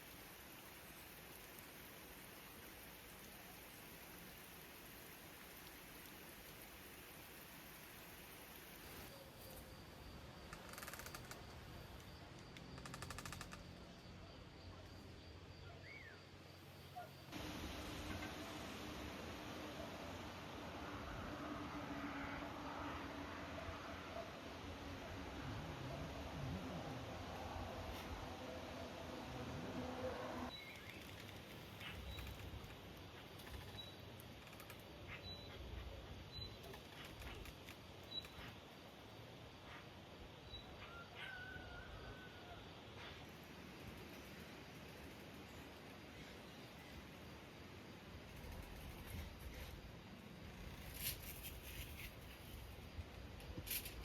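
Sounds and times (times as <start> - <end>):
low outdoor rumble: 17.4 - 30.5.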